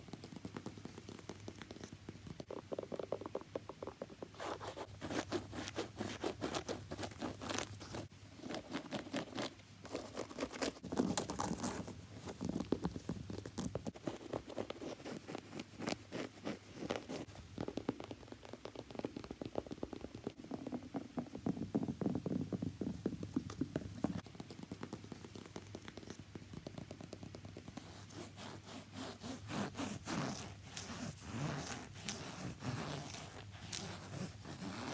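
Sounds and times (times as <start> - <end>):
scraping strokes on a shoe: 4.3 - 8.1, 27.7 - 34.9.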